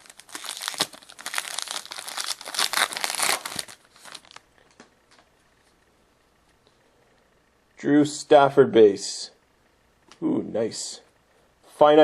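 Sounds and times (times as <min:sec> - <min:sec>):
wrapper crinkling and tearing: 0:00.0 - 0:04.4.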